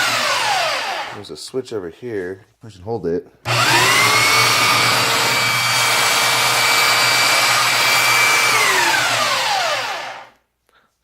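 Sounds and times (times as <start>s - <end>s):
belt sander motor whine: 0.0s - 1.2s, 3.5s - 10.3s
sander winding down: 0.0s - 1.2s, 3.5s - 10.3s.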